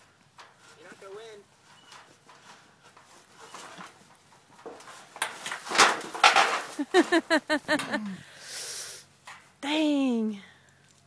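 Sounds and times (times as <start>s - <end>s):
person laughing: 6.8s - 8.3s.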